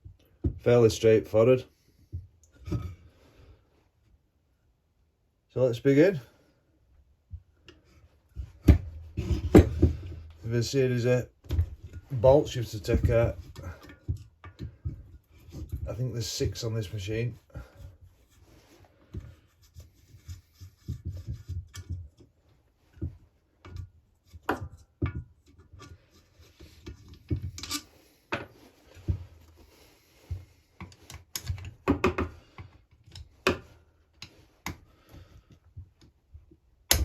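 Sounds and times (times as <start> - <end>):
light rubbing and scraping: 7.8 - 35.5.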